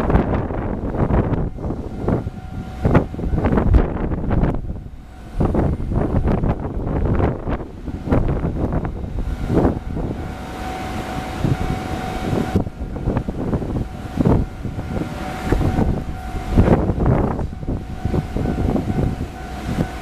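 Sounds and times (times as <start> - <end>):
steady high tone: 0.0 - 20.0
train wheels clattering on rails: 0.0 - 20.0
wind buffeting microphone: 0.0 - 20.0.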